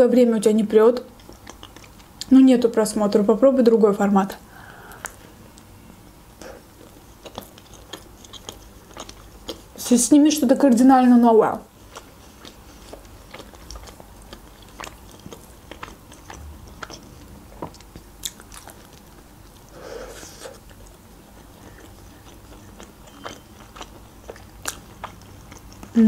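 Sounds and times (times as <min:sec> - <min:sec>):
person chewing pizza: 0:01.1 - 0:02.3, 0:06.4 - 0:09.9, 0:11.7 - 0:26.0.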